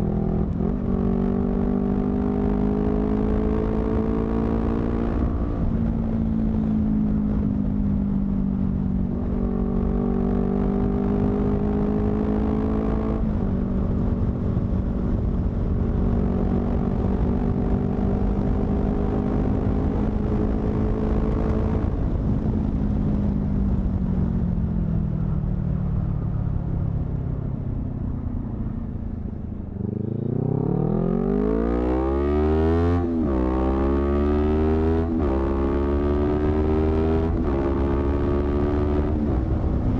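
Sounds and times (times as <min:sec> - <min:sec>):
motorcycle engine revving: 0:29.6 - 0:39.9.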